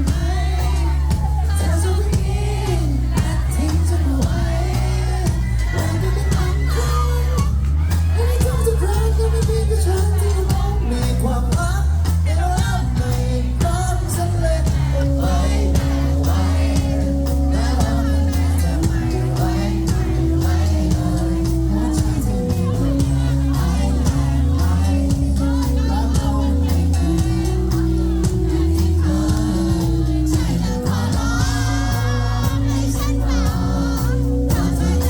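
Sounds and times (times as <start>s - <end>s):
crowd voices and whoops: 0.0s - 35.0s
lead singer singing: 0.0s - 35.0s
live pop-rock band playing: 0.0s - 35.0s.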